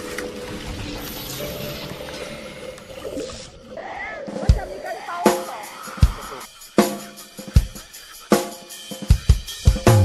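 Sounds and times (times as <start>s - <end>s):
drum kit beat: 4.3s - 10.0s.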